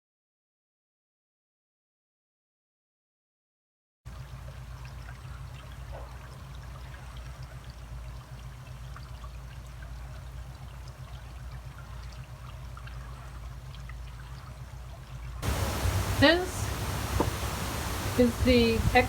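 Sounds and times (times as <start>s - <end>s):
low water rumble: 4.1s - 19.0s
water trickling with splashes: 4.1s - 19.0s.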